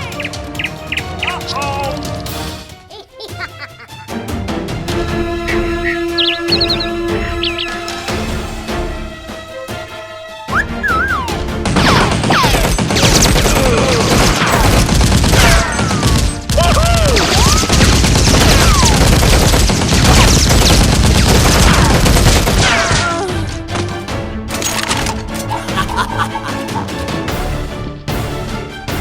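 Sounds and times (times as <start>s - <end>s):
background music: 0.0s - 29.0s
falling whistling sounds: 10.5s - 11.4s
rapid gunfire: 11.6s - 23.2s.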